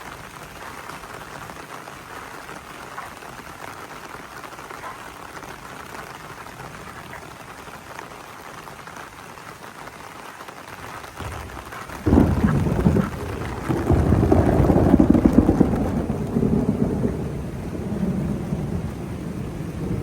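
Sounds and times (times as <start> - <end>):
heavy rain falling: 0.0 - 20.0
thunder rumbling: 11.1 - 20.0.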